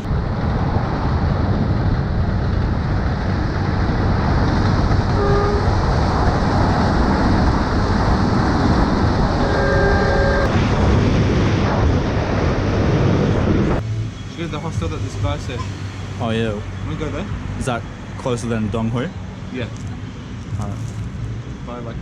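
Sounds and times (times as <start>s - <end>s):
wind on microphone: 0.0s - 14.2s
road rumble: 0.0s - 22.0s
horn beep: 9.4s - 10.5s.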